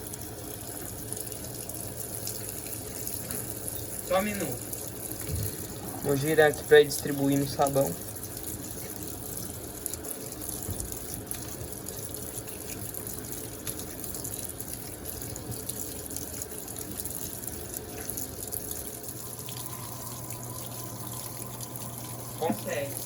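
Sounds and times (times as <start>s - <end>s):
washing machine filling with water: 0.0s - 23.0s
low hum: 19.2s - 23.0s.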